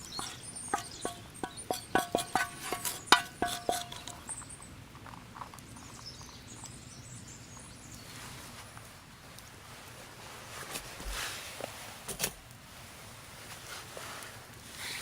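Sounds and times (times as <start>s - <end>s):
sharp ringing knocks: 0.0s - 4.3s.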